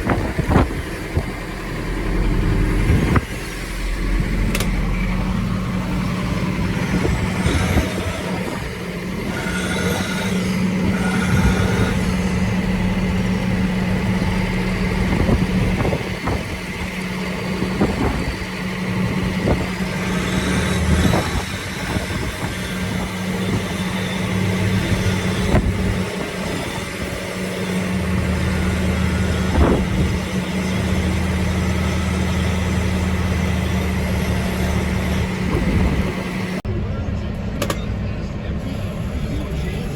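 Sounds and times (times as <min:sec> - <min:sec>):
knocks and clanks: 0:00.0 - 0:13.3, 0:37.6 - 0:37.9
farm machinery engine running: 0:00.0 - 0:39.9.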